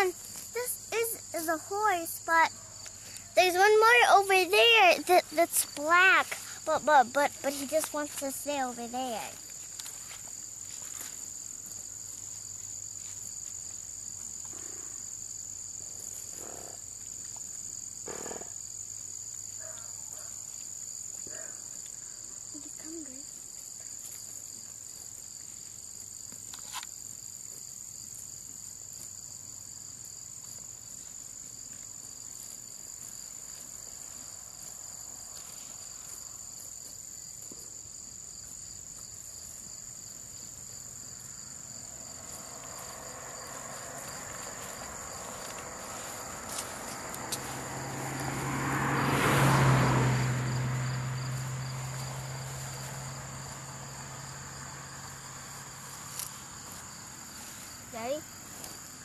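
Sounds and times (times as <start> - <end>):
insects chirping: 0.0 - 59.0
vehicle passing with engine hum: 30.7 - 59.0.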